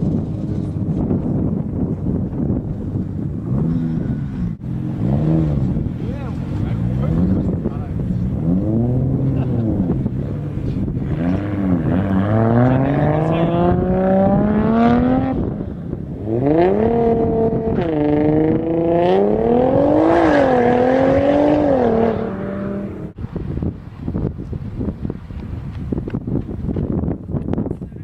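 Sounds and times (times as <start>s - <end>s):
car engine accelerating hard: 2.8s - 23.2s.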